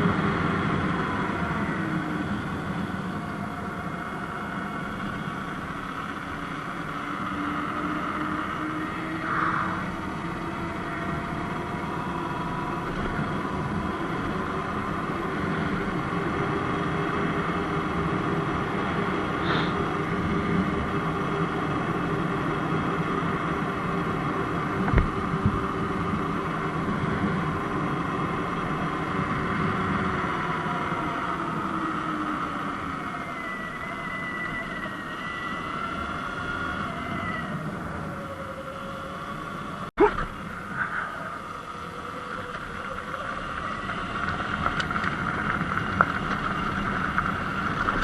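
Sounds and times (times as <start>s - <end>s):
electric motor whine: 0.0s - 48.0s
tyre and wind noise: 8.2s - 38.9s, 41.5s - 48.0s.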